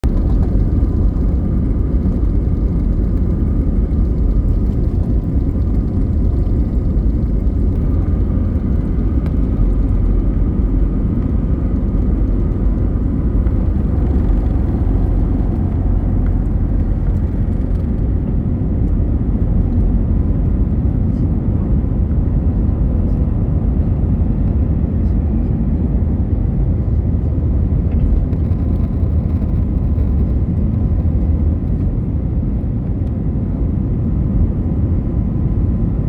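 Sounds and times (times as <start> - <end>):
faint engine whine: 0.0 - 36.0
jet engine low rumble: 0.0 - 36.0.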